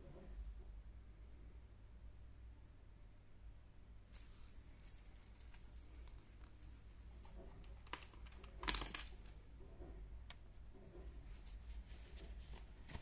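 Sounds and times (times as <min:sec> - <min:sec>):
packaging rustle: 0:04.2 - 0:09.3.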